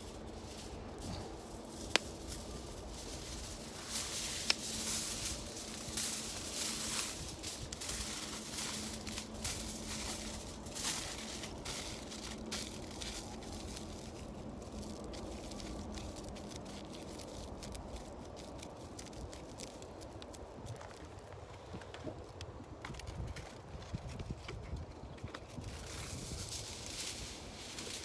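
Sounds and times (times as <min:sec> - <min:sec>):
campfire crackling: 0:00.0 - 0:21.5.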